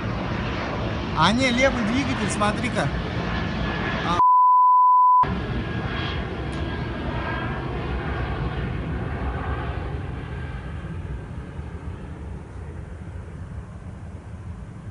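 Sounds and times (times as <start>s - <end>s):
airplane flying past: 0.0s - 4.2s, 5.3s - 14.9s
electronic censor bleep: 4.2s - 5.3s.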